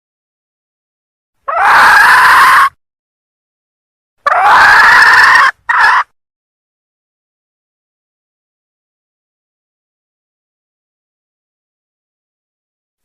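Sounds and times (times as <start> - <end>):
junglefowl hen calling harshly: 1.5 - 2.8, 4.2 - 6.1.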